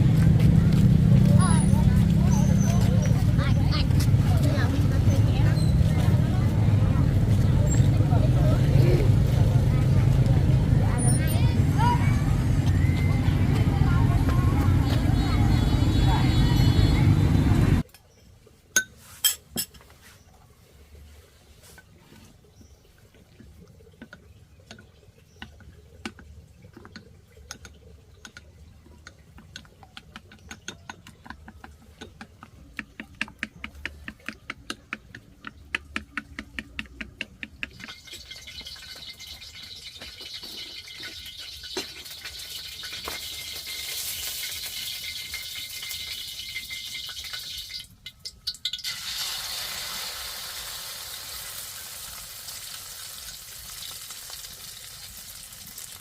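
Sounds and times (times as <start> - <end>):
food sizzling in hot oil: 37.9 - 56.0.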